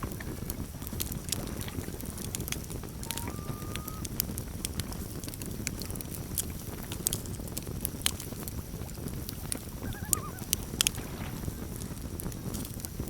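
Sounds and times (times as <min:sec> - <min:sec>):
campfire low rush: 0:00.0 - 0:13.0
fire crackles and pops: 0:00.0 - 0:13.0
loon call: 0:03.0 - 0:04.0, 0:09.8 - 0:10.5.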